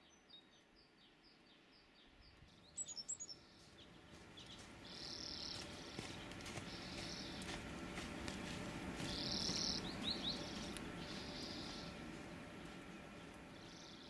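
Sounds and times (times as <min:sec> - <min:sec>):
small bird buzzy trills: 0:00.0 - 0:14.0.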